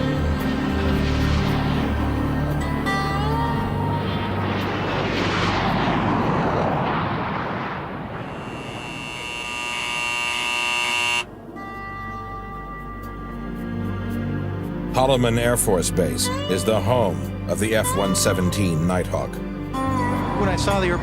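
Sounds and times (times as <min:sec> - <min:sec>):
jet passing with a whoosh: 0:00.3 - 0:10.1
high-pitched turbine whine: 0:08.2 - 0:11.4.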